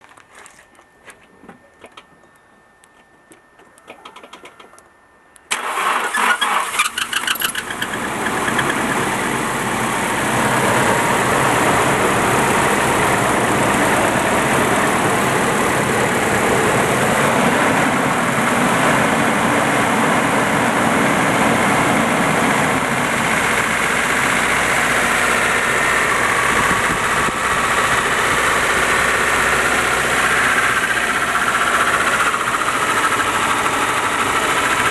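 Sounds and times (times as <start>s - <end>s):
engine starter cranking: 5.5s - 9.0s
car engine idling: 5.5s - 34.9s.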